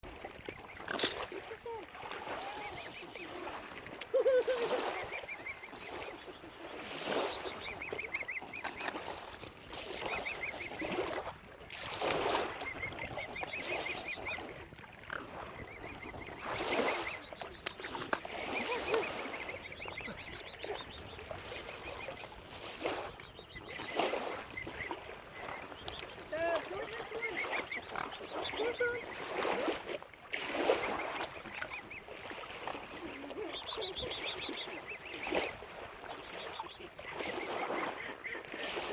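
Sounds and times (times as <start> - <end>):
waterfowl honking: 0.5 - 9.2, 12.3 - 29.6, 36.2 - 38.9
high chattering calls: 23.2 - 29.3.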